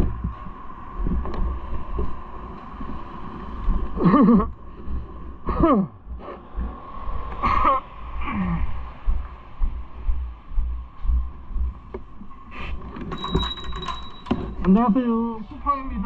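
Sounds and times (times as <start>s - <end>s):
steady low rumble: 0.0s - 16.0s
thin steady hum: 0.0s - 16.0s
wordless vocal sounds: 6.6s - 9.4s.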